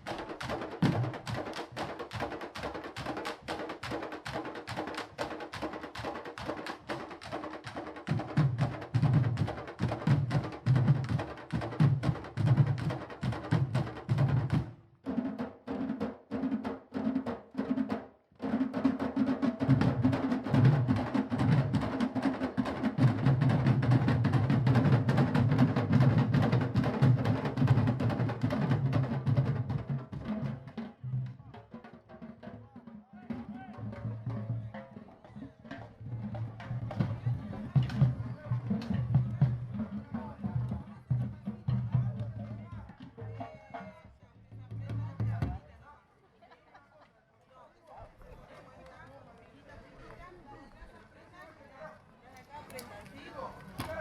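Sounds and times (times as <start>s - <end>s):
drum ensemble playing fast rhythm: 0.0s - 43.9s.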